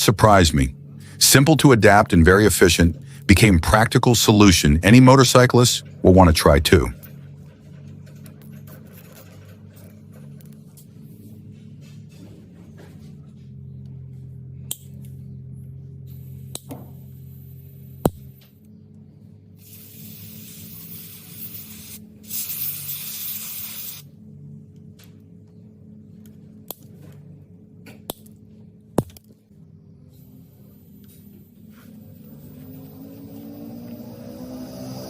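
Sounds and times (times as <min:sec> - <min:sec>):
steady low hum: 0:00.0 - 0:35.0
long hisses: 0:19.6 - 0:24.1.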